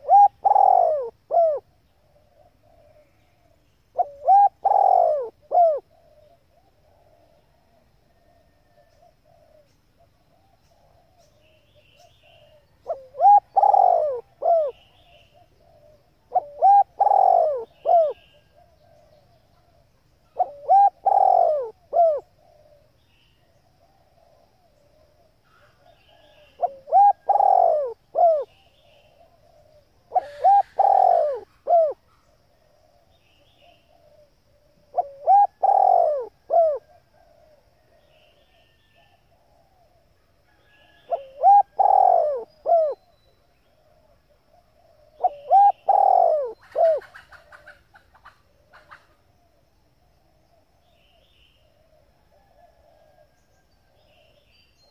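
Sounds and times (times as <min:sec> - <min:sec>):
dove cooing: 0:00.0 - 0:54.4.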